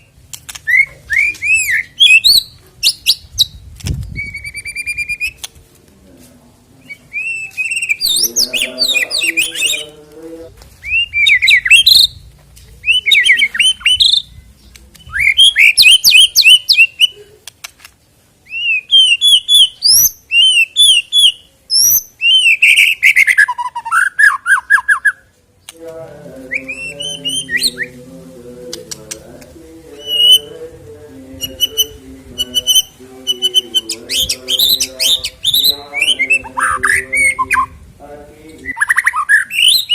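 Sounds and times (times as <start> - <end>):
songbird whistling and trilling: 0.6 - 5.5, 6.8 - 9.8, 10.8 - 12.2, 12.8 - 17.2, 18.4 - 25.3, 30.0 - 30.5, 31.4 - 37.7, 38.6 - 39.9.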